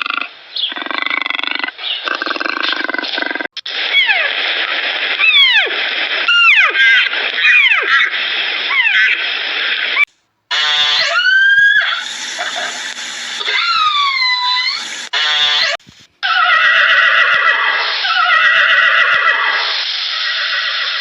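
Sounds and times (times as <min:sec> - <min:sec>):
animal call rising: 0:10.5 - 0:19.6.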